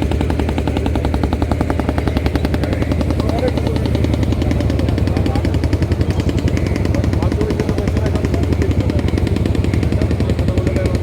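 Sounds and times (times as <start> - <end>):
motor boat engine chugging: 0.0 - 11.0.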